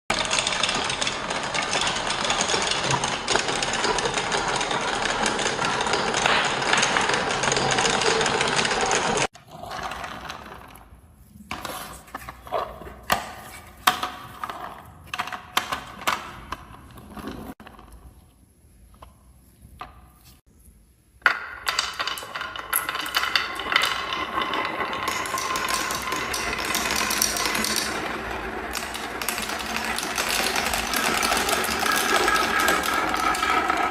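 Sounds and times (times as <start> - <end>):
marbles clicking on track pieces: 0.1 - 10.8, 21.3 - 33.9
marbles rolling down marble run: 0.1 - 10.9, 21.2 - 33.9.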